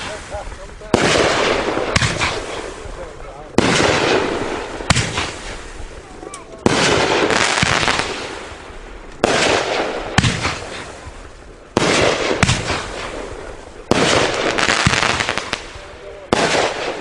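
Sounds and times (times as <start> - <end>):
firework cake bangs: 0.0 - 5.7, 6.6 - 8.5, 9.2 - 11.1, 11.7 - 17.0
crackle and hiss of aerial bursts: 0.0 - 17.0.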